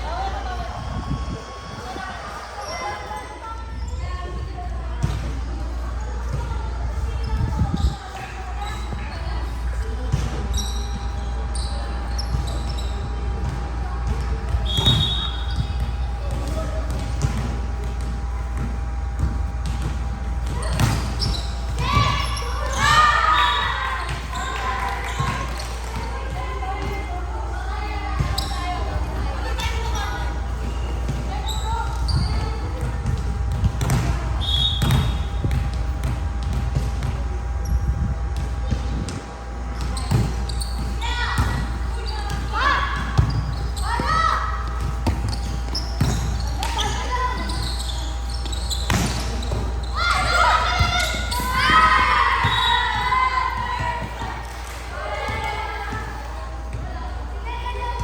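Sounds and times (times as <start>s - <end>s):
volleyball being hit and bouncing: 12.3s - 27.2s, 28.1s - 56.9s
short high squeaks: 20.6s - 25.5s, 45.3s - 51.8s.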